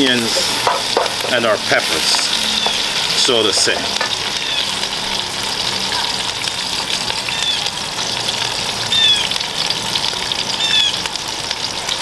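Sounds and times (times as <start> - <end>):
vegetables sizzling in hot oil: 0.0 - 12.0
wooden spoon stirring: 0.3 - 4.3.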